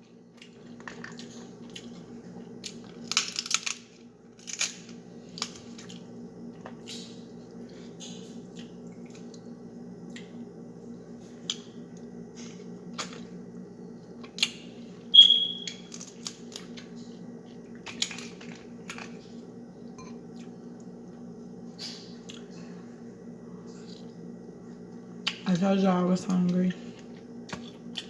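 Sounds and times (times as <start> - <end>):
crab shell cracking: 2.7 - 5.6.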